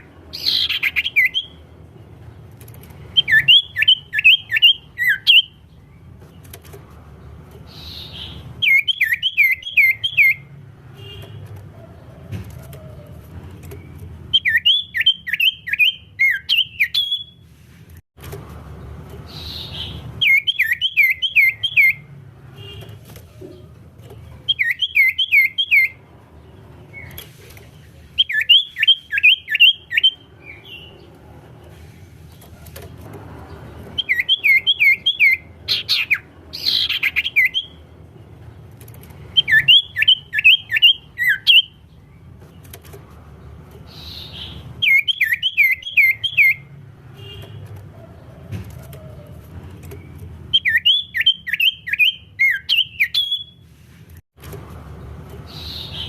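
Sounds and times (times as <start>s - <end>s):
bird whistled chirps: 0.4s - 1.6s, 3.2s - 5.6s, 7.7s - 10.4s, 14.3s - 17.4s, 19.4s - 22.1s, 24.5s - 26.0s, 28.2s - 30.9s, 34.0s - 37.8s, 39.4s - 41.8s, 43.9s - 46.7s, 50.5s - 53.6s.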